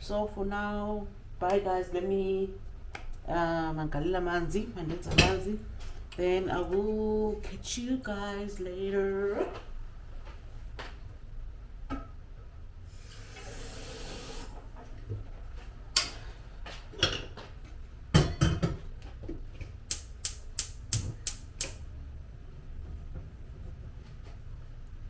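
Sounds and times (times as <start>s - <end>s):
sharp clicks and knocks: 19.1s - 21.8s.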